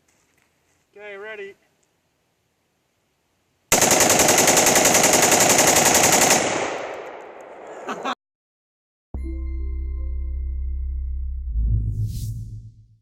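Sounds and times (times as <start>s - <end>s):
rapid automatic gunfire: 3.7s - 6.9s.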